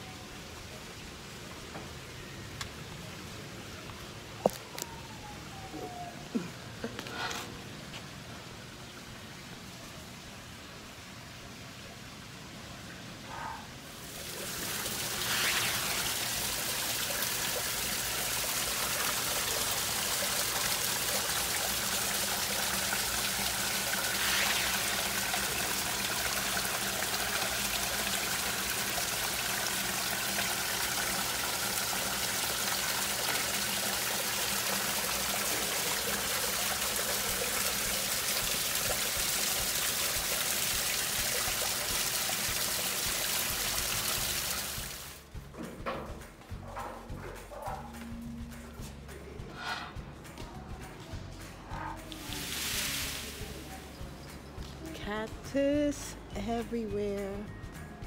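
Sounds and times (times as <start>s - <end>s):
running water trickling and splashing: 13.8s - 45.3s, 52.1s - 55.4s.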